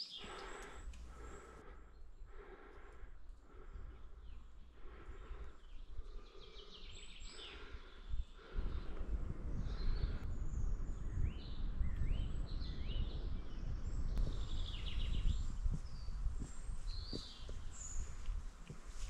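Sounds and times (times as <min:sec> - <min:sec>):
small birds chirping: 0:00.0 - 0:19.0
low rumbling noise: 0:07.4 - 0:18.2.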